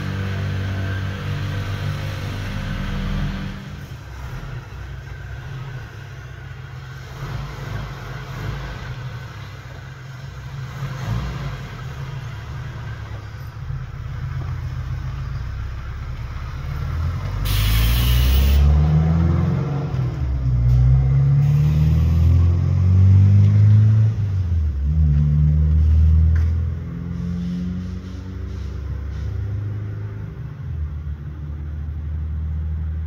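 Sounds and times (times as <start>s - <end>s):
vehicle engine revving: 0.0s - 33.0s
brief hiss: 17.4s - 18.7s.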